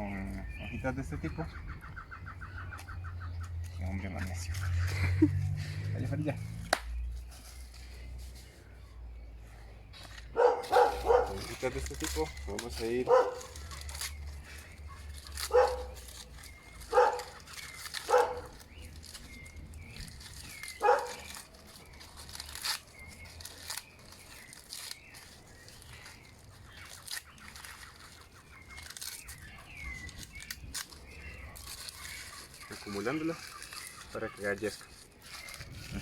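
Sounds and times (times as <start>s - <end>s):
dry leaves crackling: 0.0s - 36.0s
animal calls: 10.4s - 18.6s.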